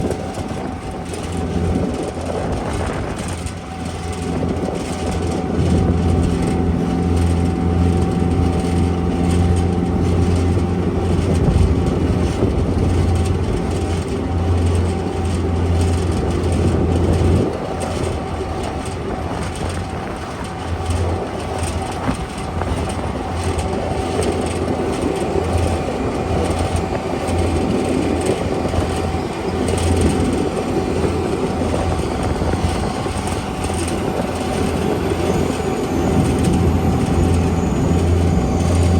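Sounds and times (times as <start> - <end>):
steady high whine: 0.0 - 38.9
tow tractor engine humming: 0.0 - 38.9.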